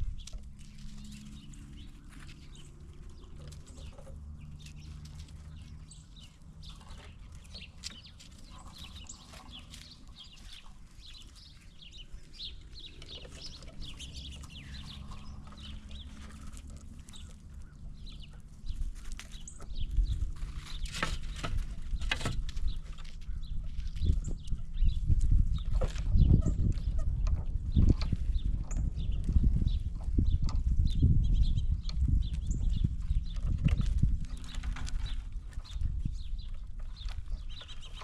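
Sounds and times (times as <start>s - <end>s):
squirrels cracking peanut shells: 0.0s - 24.6s.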